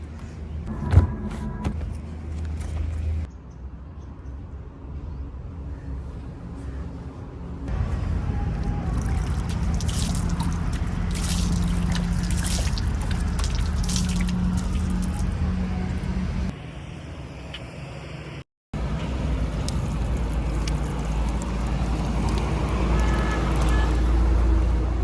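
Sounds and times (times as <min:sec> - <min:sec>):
wet mud splashing and pouring: 0:08.2 - 0:15.4, 0:19.4 - 0:24.3.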